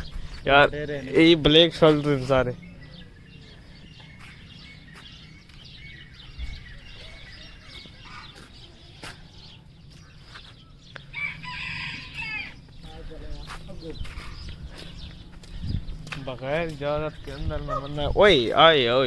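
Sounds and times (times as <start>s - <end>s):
birds chirping: 0.0s - 19.0s
rooster crowing: 11.1s - 12.6s.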